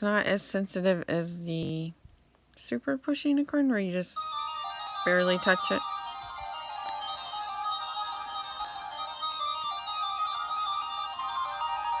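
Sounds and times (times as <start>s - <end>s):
toy sound chip beeping melody: 4.2s - 12.0s.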